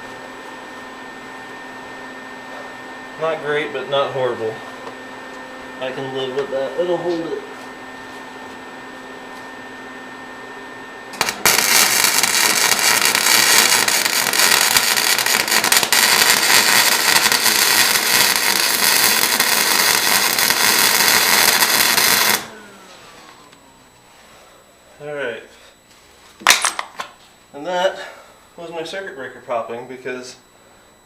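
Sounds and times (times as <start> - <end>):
welding arc crackling: 11.1 - 22.6.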